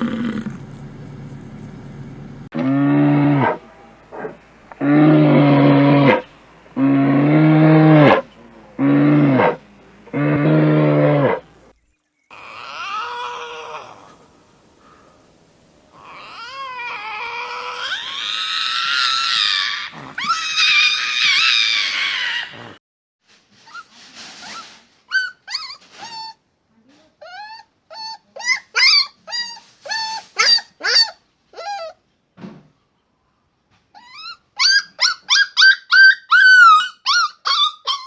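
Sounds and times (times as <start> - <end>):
dog howling: 3.2 - 11.4, 12.3 - 14.2, 15.9 - 22.8
dog yelping and whimpering: 12.3 - 14.2, 16.0 - 22.7, 25.1 - 26.4, 27.2 - 32.0, 34.0 - 38.0.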